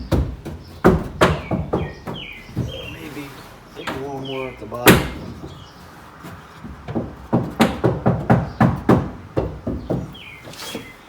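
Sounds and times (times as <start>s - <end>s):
dull knocks on sheet metal: 0.0s - 3.0s, 4.8s - 10.4s.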